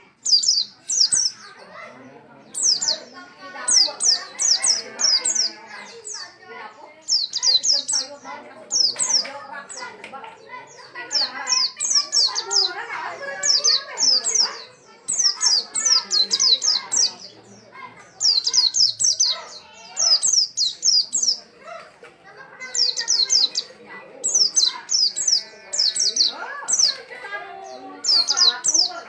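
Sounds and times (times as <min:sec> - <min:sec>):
bird singing high slurred notes: 0:00.0 - 0:01.5, 0:07.0 - 0:09.9, 0:18.2 - 0:21.4, 0:22.6 - 0:29.0.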